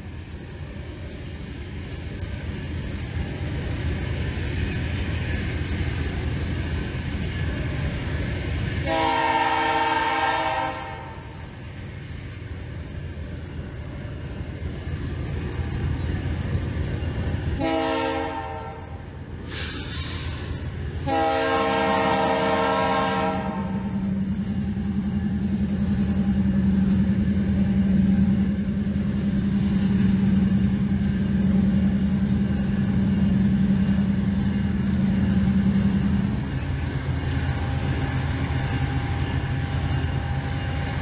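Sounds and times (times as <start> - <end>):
locomotive engine rumbling: 0.0 - 41.0
locomotive horn blasts: 8.8 - 11.4, 17.6 - 19.0, 21.0 - 24.0.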